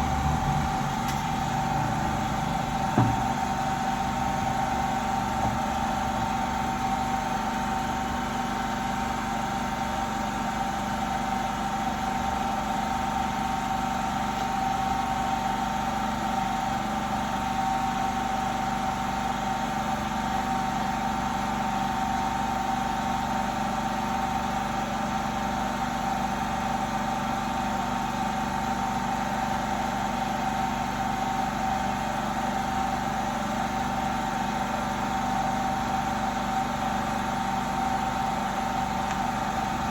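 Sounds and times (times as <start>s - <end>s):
machine hum: 0.0s - 7.5s.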